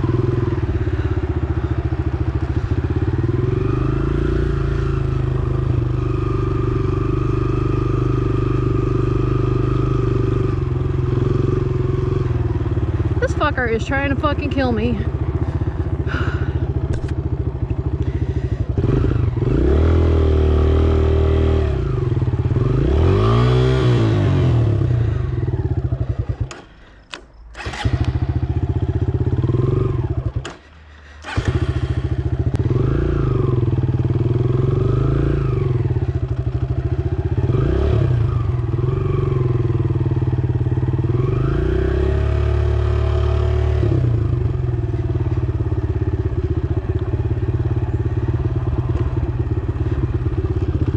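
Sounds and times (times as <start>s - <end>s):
dirt bike engine revving: 18.1s - 26.8s, 27.5s - 44.6s.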